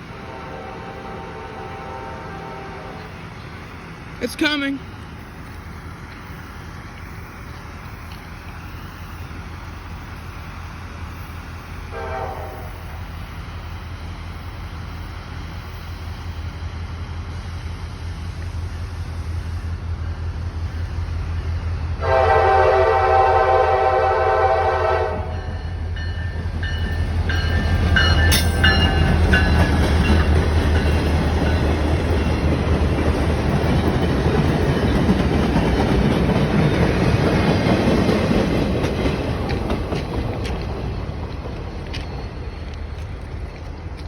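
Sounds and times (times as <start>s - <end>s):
diesel locomotive engine drone: 0.0s - 44.0s
train horn blast: 0.2s - 3.1s, 11.9s - 13.0s, 22.0s - 25.6s
high metallic tones: 25.3s - 32.4s
train wheel clatter: 25.3s - 44.0s.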